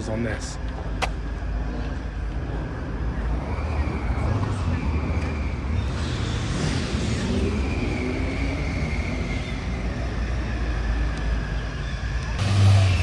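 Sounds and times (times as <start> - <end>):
vehicle engines rumbling: 0.0 - 13.0
engine surge: 3.2 - 10.9, 12.0 - 13.0.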